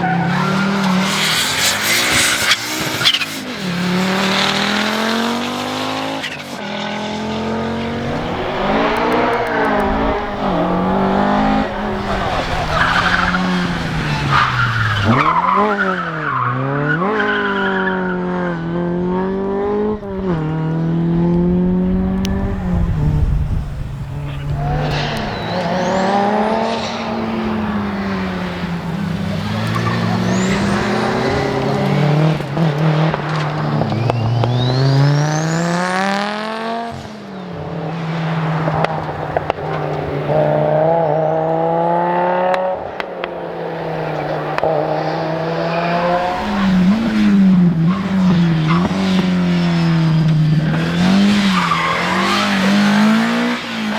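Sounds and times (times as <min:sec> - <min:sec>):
rally car engine revving: 0:00.0 - 0:53.9
tyre noise: 0:21.6 - 0:35.4, 0:43.2 - 0:53.9.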